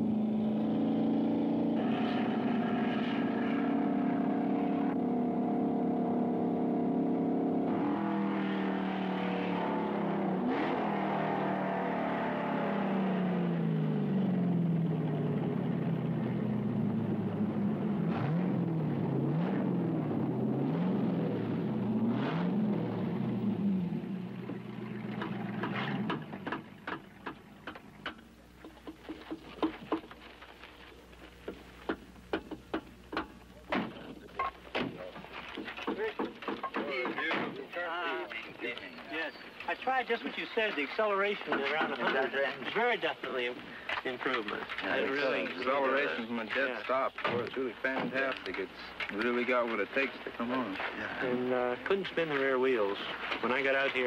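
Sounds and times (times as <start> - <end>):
car engine revving: 0.0 - 26.8.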